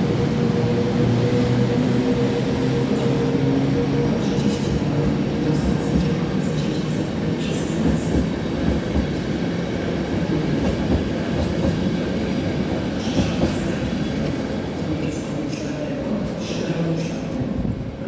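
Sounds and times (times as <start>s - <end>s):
train wheels rumbling on rails: 0.0s - 18.0s
clickety-clack over rail joints: 4.3s - 7.0s, 7.7s - 9.2s, 10.1s - 14.4s.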